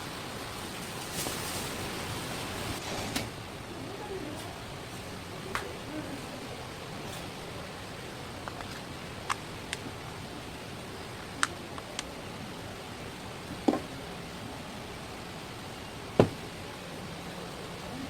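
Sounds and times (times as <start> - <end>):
steady hiss: 0.0 - 18.0
dull thump: 16.2 - 16.4.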